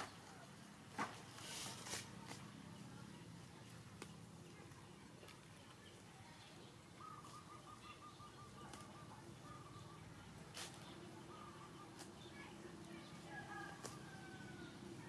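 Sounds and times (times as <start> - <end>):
bird trilling: 7.0 - 10.1.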